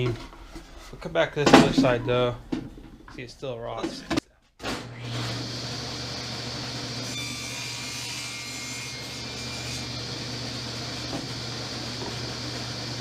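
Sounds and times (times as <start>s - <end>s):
table saw cutting wood: 4.6s - 13.0s.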